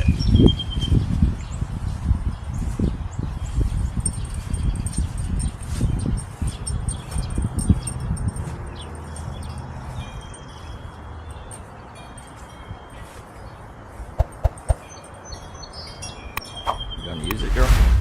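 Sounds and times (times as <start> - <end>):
wind on microphone: 0.0 - 8.6, 14.1 - 14.9, 16.4 - 18.0
quick taps: 14.2 - 14.8.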